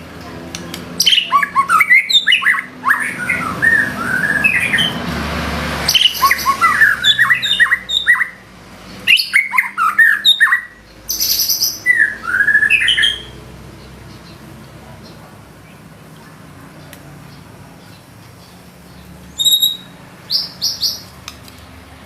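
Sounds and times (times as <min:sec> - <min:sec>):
bird singing chirps and whistles: 0:01.0 - 0:05.0, 0:05.9 - 0:08.4, 0:09.0 - 0:13.4, 0:19.3 - 0:21.0.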